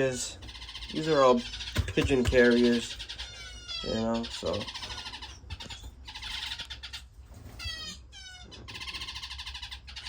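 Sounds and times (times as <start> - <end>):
finches buzzy chatter: 0.0 - 7.1.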